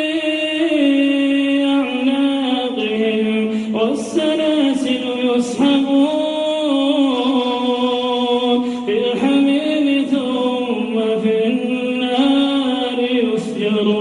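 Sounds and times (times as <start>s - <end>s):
man chanting melodically: 0.0s - 14.0s.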